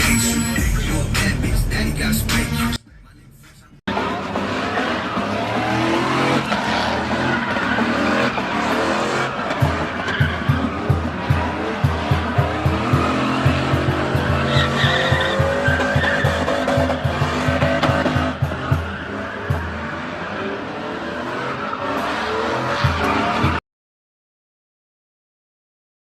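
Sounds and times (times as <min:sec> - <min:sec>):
truck engine revving: 0:00.0 - 0:23.6
tires squealing: 0:03.9 - 0:23.6.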